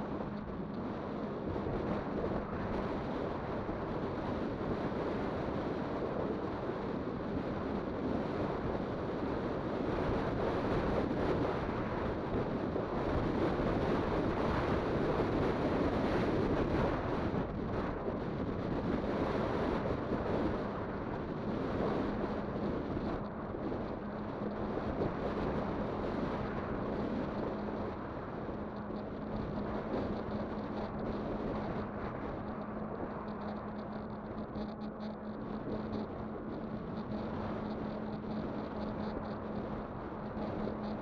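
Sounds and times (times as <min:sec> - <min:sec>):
faint steady hum: 0:00.0 - 0:41.0
wind buffeting microphone: 0:00.0 - 0:41.0.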